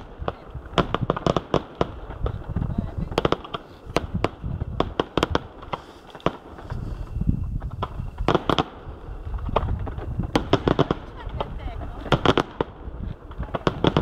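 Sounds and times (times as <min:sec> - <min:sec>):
fireworks bangs: 0:00.0 - 0:14.0
low rumble: 0:06.4 - 0:14.0.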